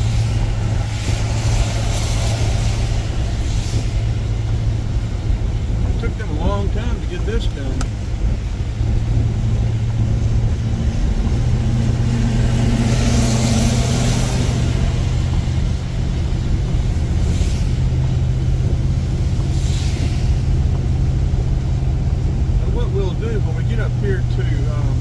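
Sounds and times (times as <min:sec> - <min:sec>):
wet-road spray hiss: 0:00.0 - 0:05.8, 0:11.7 - 0:22.8
car engine drone: 0:00.0 - 0:25.0.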